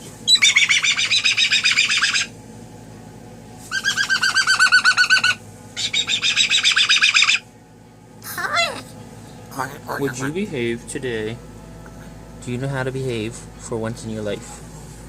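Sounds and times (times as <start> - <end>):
pet bird chirping: 0.2 - 2.3, 3.7 - 7.4.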